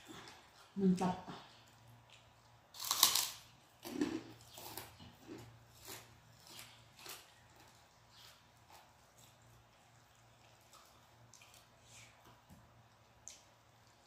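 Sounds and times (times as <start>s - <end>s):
person crunching food: 2.1s - 8.2s.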